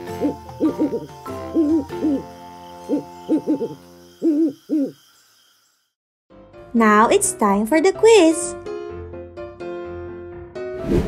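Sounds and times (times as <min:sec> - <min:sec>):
owl hooting: 0:00.0 - 0:05.2.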